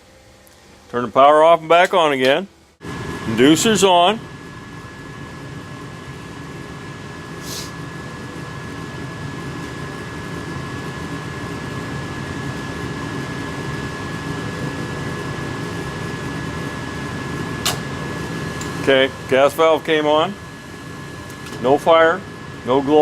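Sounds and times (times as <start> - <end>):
furnace motor whine: 0.0 - 23.0
short hiss: 7.4 - 7.8.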